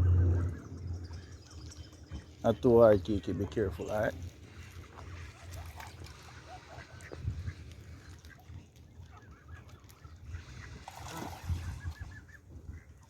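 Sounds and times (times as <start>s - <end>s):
wind rumbling on microphone: 0.0s - 6.3s, 7.0s - 8.2s, 10.2s - 13.0s
waterfowl calling: 3.2s - 13.0s.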